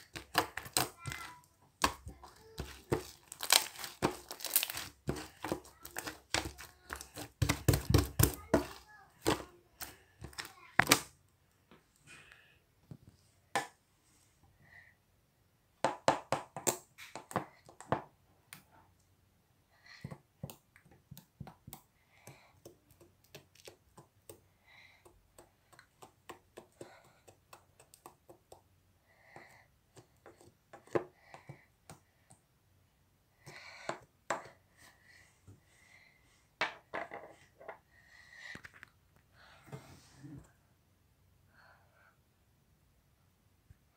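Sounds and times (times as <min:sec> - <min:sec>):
slime clicking and popping: 0:03.0 - 0:05.3.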